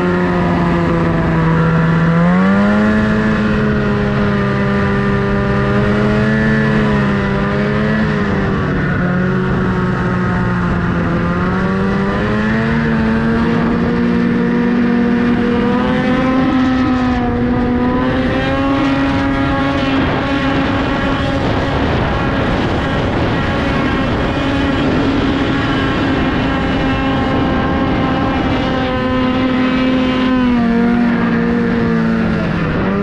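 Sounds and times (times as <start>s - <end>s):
snowmobile engine running: 0.0s - 33.0s
wind rumbling on microphone: 0.0s - 33.0s.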